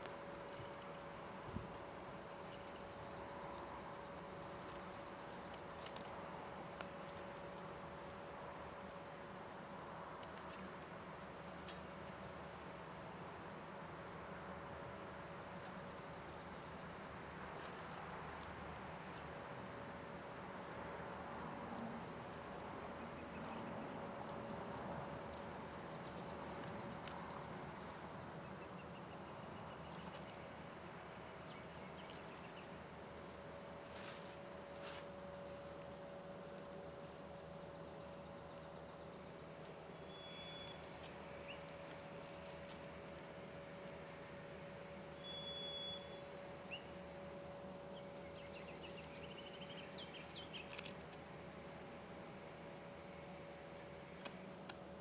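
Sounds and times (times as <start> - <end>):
faint steady hum: 0.0 - 55.0
steady faint tone: 0.0 - 55.0
small birds chirping: 22.0 - 51.2.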